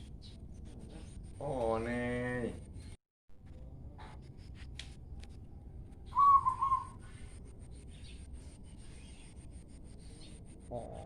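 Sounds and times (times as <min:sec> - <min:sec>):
bird whistled call: 0:06.1 - 0:07.2.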